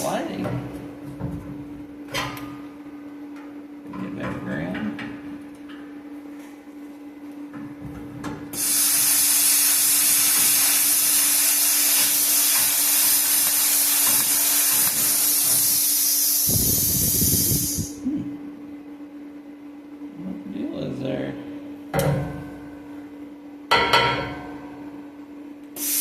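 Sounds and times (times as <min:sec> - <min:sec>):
plasma cutter hissing: 0:08.5 - 0:18.0, 0:25.8 - 0:26.0.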